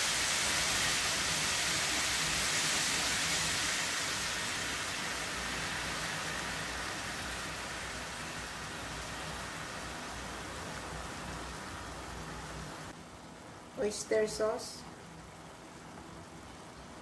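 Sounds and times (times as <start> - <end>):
pork and onions sizzling in a pan: 0.0 - 12.9.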